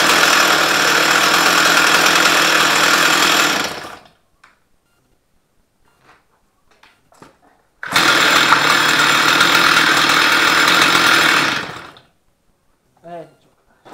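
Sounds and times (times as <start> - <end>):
chainsaw running at high revs: 0.0 - 4.1, 7.8 - 12.1.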